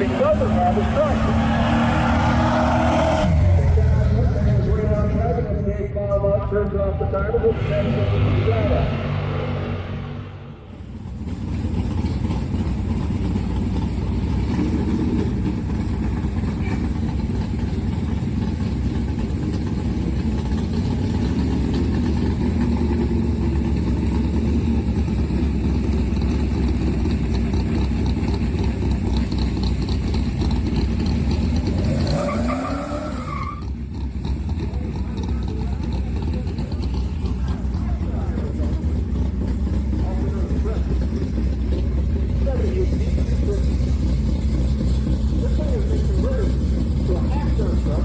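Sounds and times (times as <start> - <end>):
short rising tone: 0.0 - 4.7
truck engine running hard: 0.0 - 48.0.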